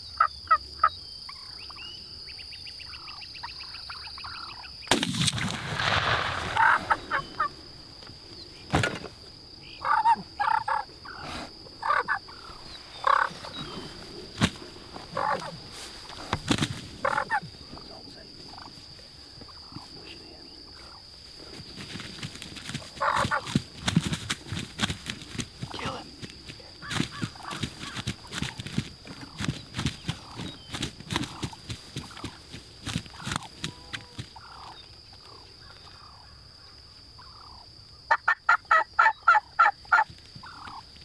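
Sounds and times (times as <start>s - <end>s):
wild turkeys calling: 2.8s - 7.8s, 9.6s - 16.4s, 17.0s - 18.8s, 22.0s - 40.8s.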